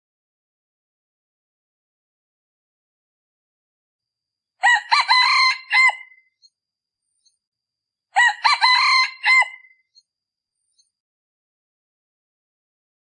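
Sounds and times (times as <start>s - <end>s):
rooster crowing: 4.6s - 6.2s, 8.2s - 9.7s.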